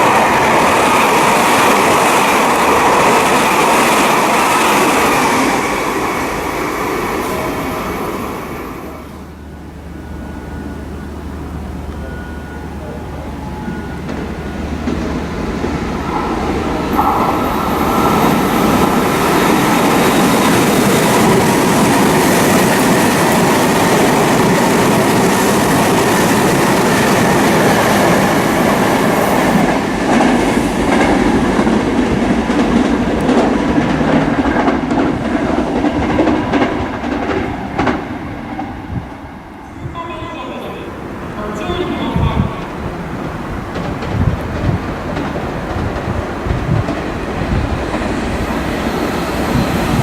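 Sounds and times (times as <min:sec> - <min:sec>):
train passing at speed: 0:00.0 - 0:50.0
wheel clacks over rail joints: 0:42.7 - 0:48.5.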